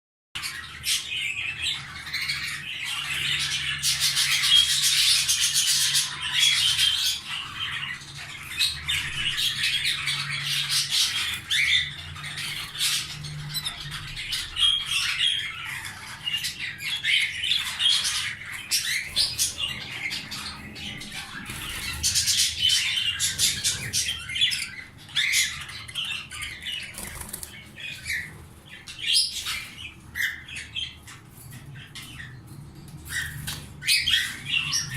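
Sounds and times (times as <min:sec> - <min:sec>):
canaries singing and chirping: 0:00.4 - 0:34.9.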